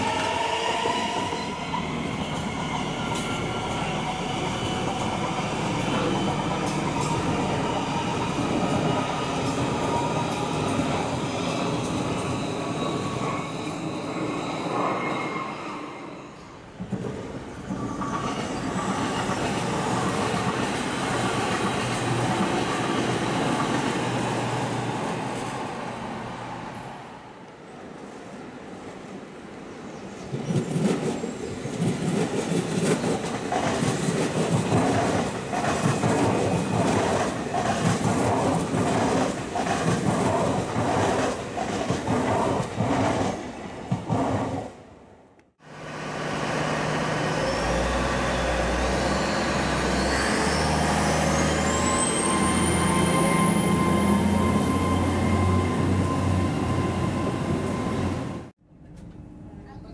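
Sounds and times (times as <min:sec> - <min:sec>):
train wheels beating over rail joints: 0:30.3 - 0:44.7.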